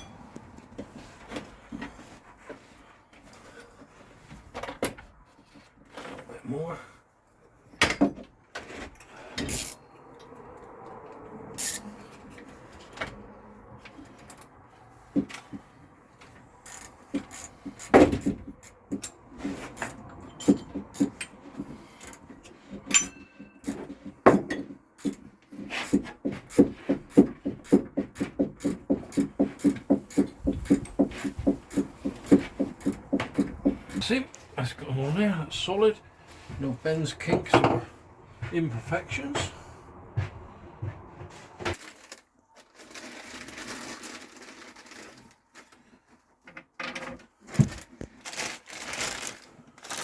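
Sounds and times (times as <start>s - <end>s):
plastic pipe knocking and rubbing: 17.1s - 21.9s, 23.6s - 34.1s
fast regular knocks: 26.0s - 34.1s.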